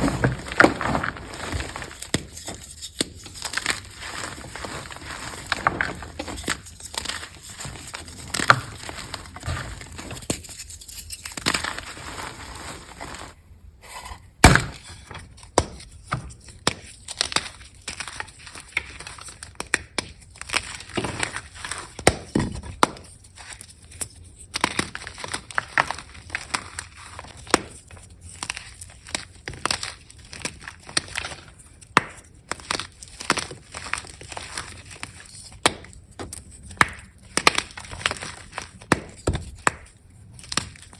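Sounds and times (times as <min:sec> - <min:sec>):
chalk crunching and snapping: 0:00.0 - 0:13.4.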